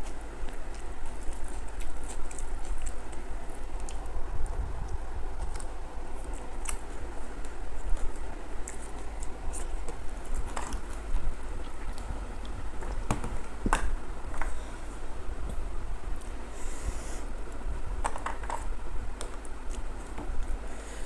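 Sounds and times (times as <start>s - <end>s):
chewing and mouth noises: 0.0s - 13.6s
steady low hum: 0.0s - 21.0s.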